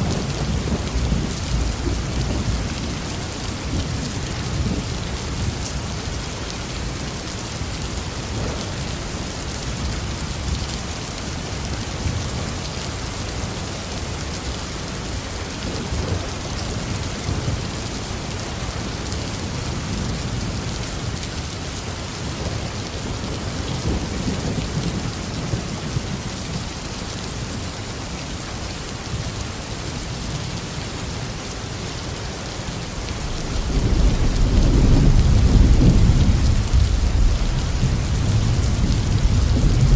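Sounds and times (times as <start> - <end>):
rolling thunder: 0.0 - 5.6, 32.8 - 39.9
heavy rain on a roof: 0.0 - 39.9.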